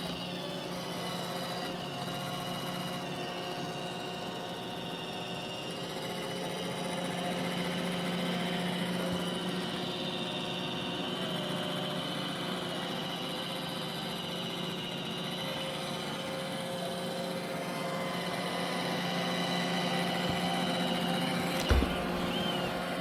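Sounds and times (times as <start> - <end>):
robot vacuum motor whirring: 21.4 - 23.0.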